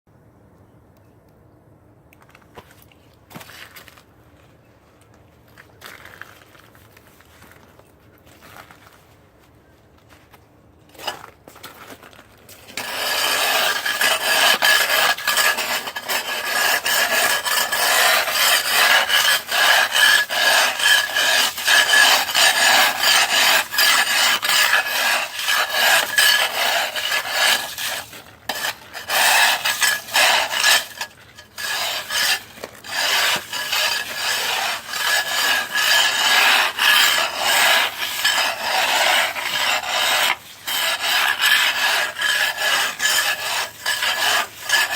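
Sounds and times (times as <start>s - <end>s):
ice scraping: 10.9s - 44.9s.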